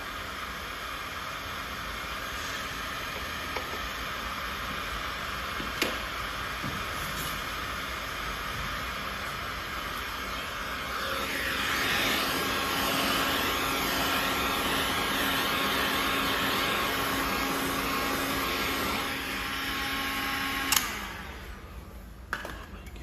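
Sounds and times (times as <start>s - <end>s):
electric fan motor running: 0.0s - 22.1s
fan switch click: 20.7s - 21.0s.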